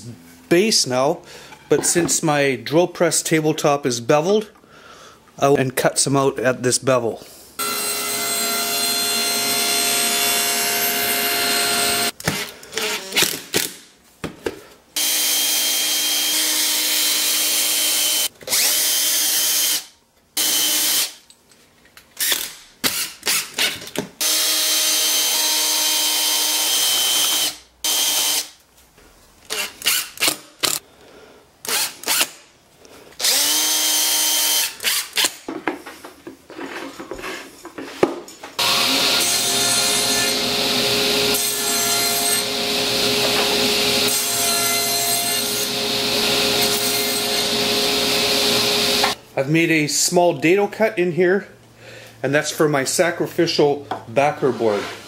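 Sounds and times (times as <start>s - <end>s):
power saw cutting wood: 7.6s - 12.2s, 15.0s - 21.1s, 33.2s - 35.0s, 38.6s - 49.2s.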